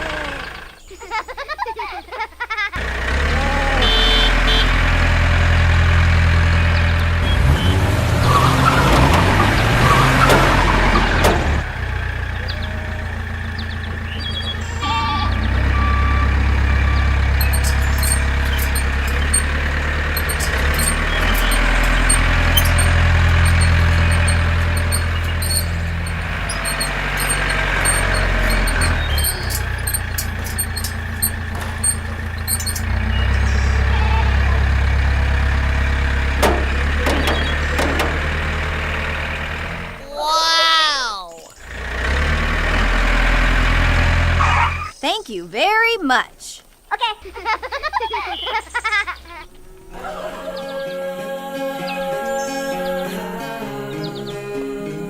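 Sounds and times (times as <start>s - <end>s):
engine droning: 0.0s - 1.4s, 2.7s - 40.2s, 41.6s - 45.0s
noisy clattering: 5.1s - 40.0s.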